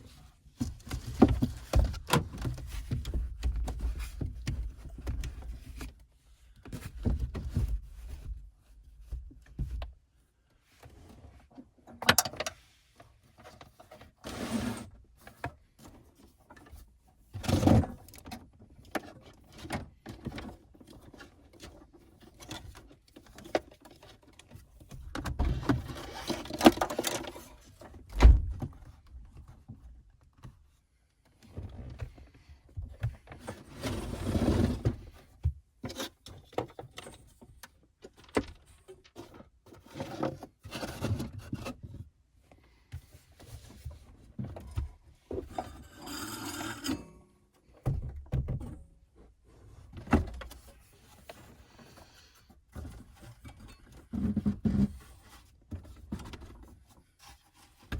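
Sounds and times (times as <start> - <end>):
rustling and scraping: 0.0 - 11.8, 12.5 - 47.8, 48.5 - 57.9
objects thunking and clicking: 47.8 - 48.9.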